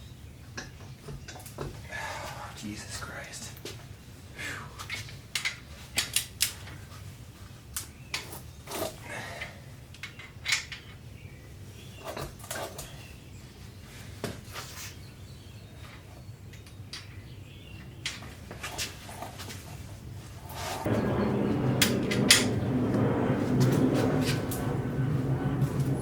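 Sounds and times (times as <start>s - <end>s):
low steady hum: 19.2s - 26.0s.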